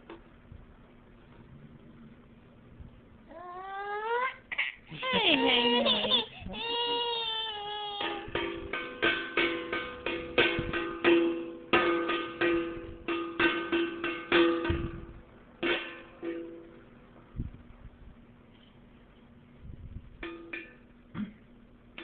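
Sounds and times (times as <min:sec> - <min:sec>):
banging on ringing object: 0:08.0 - 0:16.8, 0:20.2 - 0:20.9.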